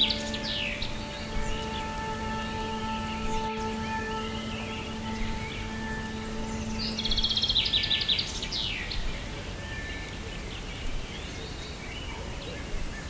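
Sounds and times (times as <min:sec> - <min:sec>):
steady noise bed: 0:00.0 - 0:09.6
held musical drone: 0:00.0 - 0:10.3
bird chirps: 0:00.0 - 0:13.0.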